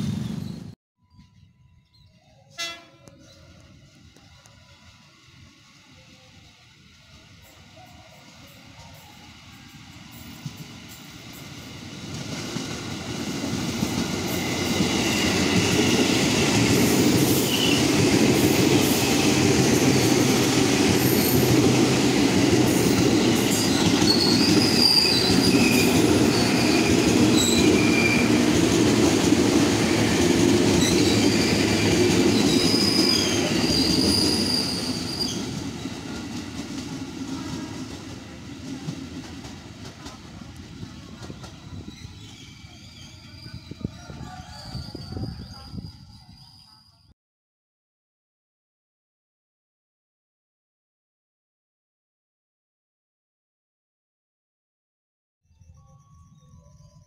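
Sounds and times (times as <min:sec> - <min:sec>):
train wheels rumbling on rails: 0:03.1 - 0:46.8
high wheel squeals: 0:23.1 - 0:28.5, 0:30.0 - 0:35.6, 0:41.6 - 0:47.1.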